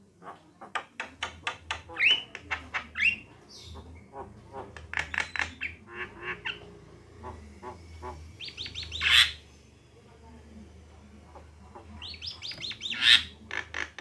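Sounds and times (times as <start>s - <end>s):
myna harsh chattering calls: 1.7s - 9.5s, 12.0s - 14.0s.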